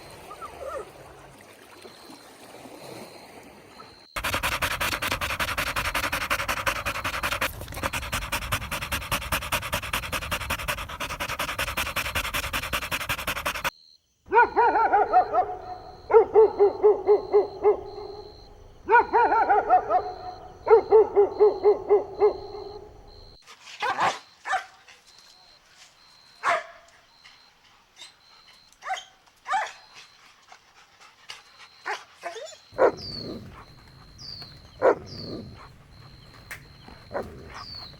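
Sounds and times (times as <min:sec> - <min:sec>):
puppies whimpering and yipping: 0:00.1 - 0:00.9
dense rasping noise: 0:04.2 - 0:13.7.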